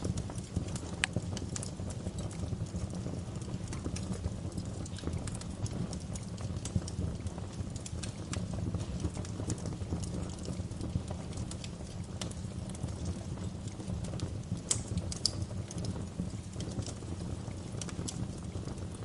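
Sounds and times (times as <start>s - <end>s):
low rumble of flames: 0.0s - 19.0s
wood fire crackling: 0.0s - 19.0s.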